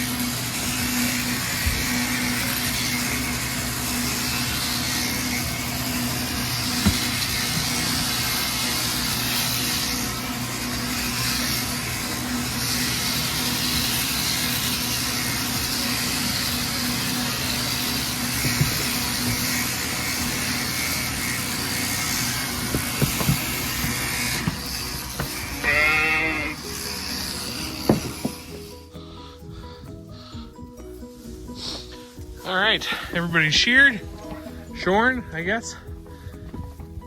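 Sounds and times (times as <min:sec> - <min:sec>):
electric sheep shears humming: 0:00.0 - 0:37.0
sheep bleating: 0:25.3 - 0:26.8.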